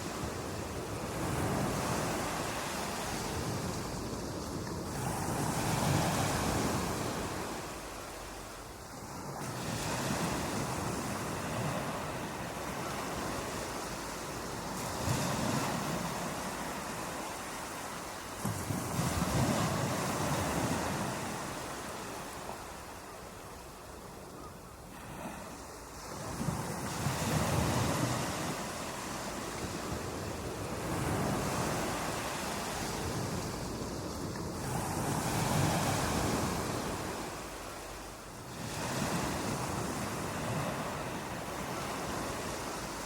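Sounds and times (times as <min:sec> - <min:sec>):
ocean waves breaking on beach: 0:00.0 - 0:43.0.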